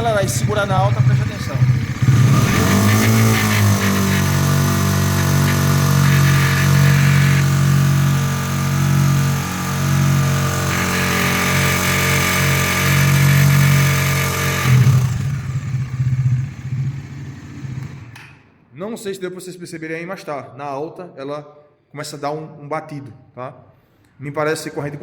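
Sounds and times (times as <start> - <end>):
motorcycle engine revving: 0.0 - 18.2.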